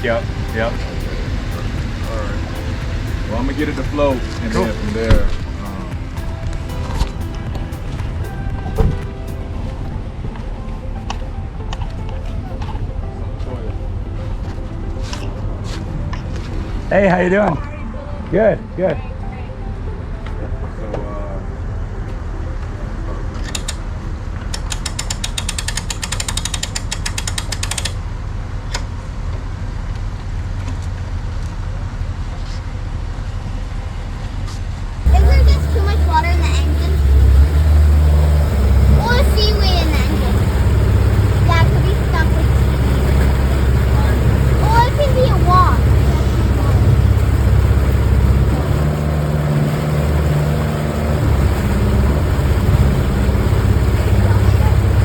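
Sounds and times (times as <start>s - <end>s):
steady low rumble: 0.0s - 17.0s, 35.1s - 55.0s
boat motor running: 0.0s - 27.9s, 35.1s - 55.0s
winch ratchet clicking: 24.5s - 28.0s.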